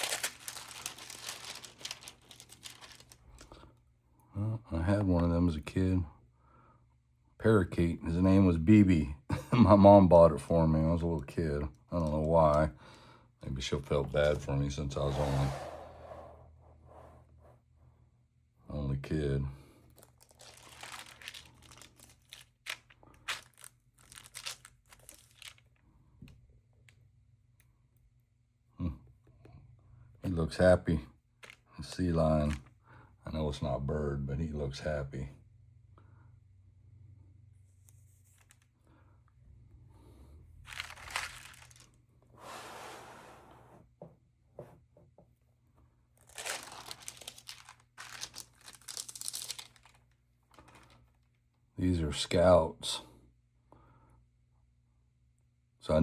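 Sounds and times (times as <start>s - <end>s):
album pages crinkling: 0.0s - 3.7s, 19.8s - 25.8s, 31.4s - 31.7s, 40.7s - 42.0s, 46.2s - 51.2s.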